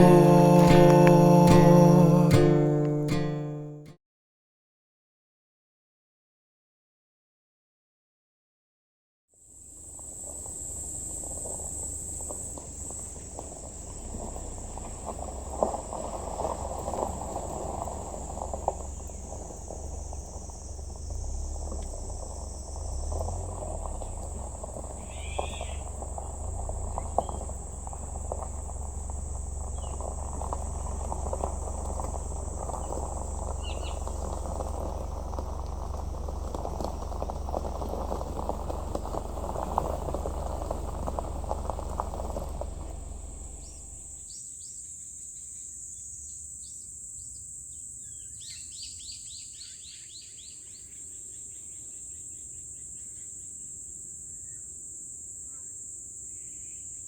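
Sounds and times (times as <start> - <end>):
insects droning: 0.0 - 3.6, 9.4 - 57.0
soft rustling with clicks: 11.3 - 44.0
bird chirps: 25.0 - 26.0, 29.7 - 30.1, 32.8 - 34.3.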